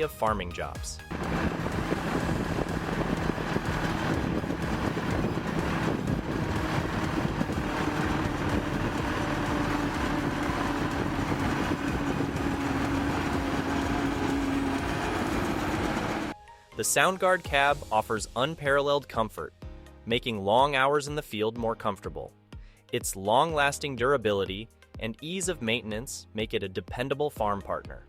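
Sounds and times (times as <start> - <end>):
tractor engine running: 1.1 - 16.4.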